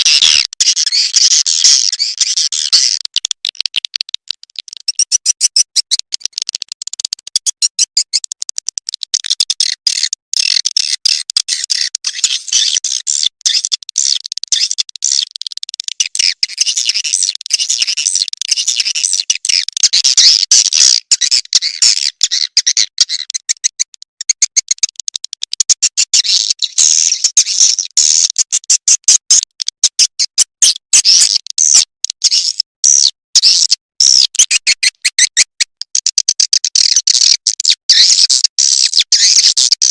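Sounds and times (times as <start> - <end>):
swiftlet chirping and twittering: 4.8 - 6.0, 16.0 - 23.8, 31.7 - 35.5.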